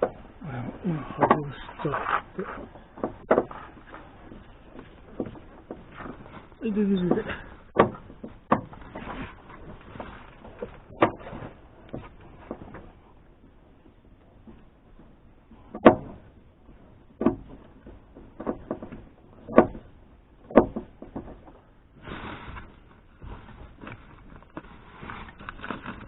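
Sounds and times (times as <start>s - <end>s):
lining rustling scrape: 0.0s - 6.6s, 7.2s - 13.2s, 21.0s - 26.0s.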